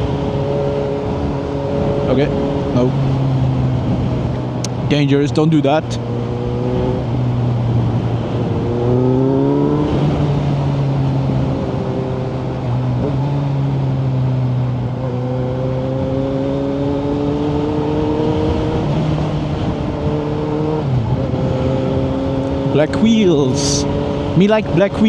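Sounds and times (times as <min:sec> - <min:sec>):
motorcycle engine revving: 0:05.8 - 0:25.0.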